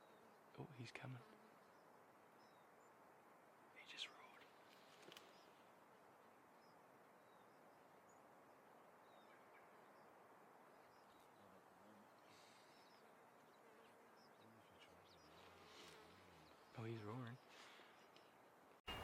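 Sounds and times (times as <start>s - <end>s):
faint chirps: 10.8s - 19.0s.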